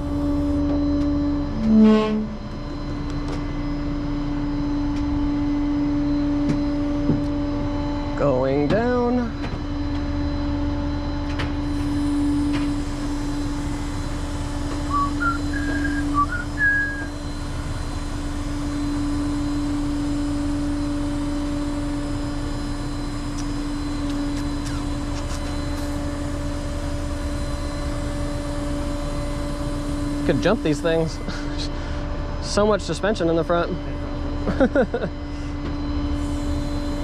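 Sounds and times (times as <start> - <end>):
truck hydraulics humming: 0.0 - 0.6, 11.7 - 32.2
short high chirps: 14.9 - 17.1.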